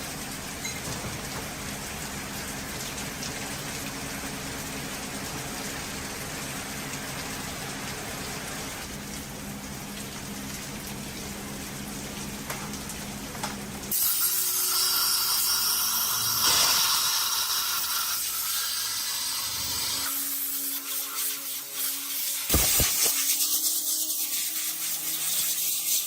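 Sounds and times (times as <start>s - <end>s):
high-pressure jet hissing: 13.9s - 26.0s.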